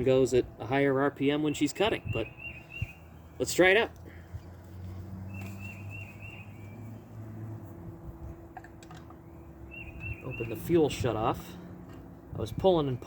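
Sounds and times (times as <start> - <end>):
bird chirping: 1.3 - 3.6, 5.2 - 7.2, 9.0 - 11.0.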